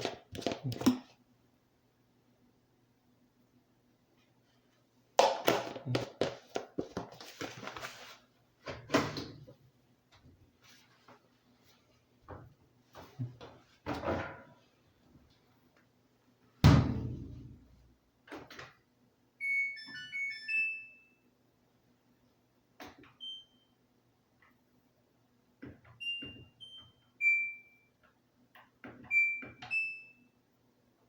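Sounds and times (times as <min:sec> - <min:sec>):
washing machine knocks and clatters: 0:16.6 - 0:17.5
electronic chime tune: 0:19.4 - 0:21.2.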